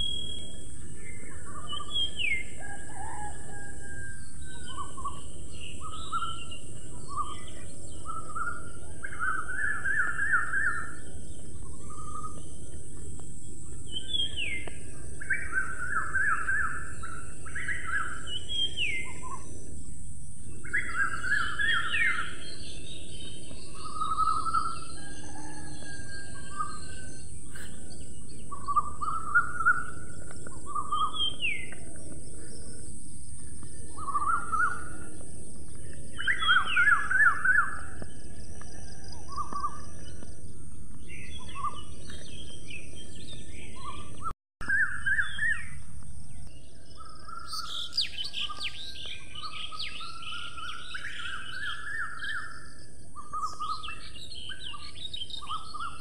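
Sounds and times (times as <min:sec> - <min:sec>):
steady background hiss: 0:00.0 - 0:38.5
birds whistling and chirping: 0:00.0 - 0:56.0.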